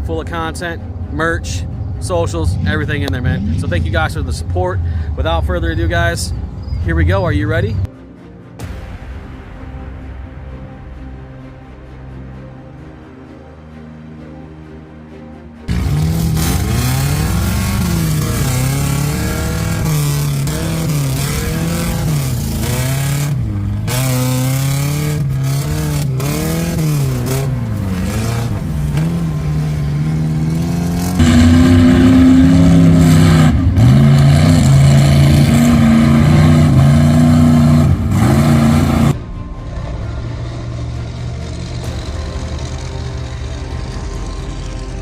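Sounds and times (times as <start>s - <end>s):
truck engine revving hard: 15.7s - 45.0s.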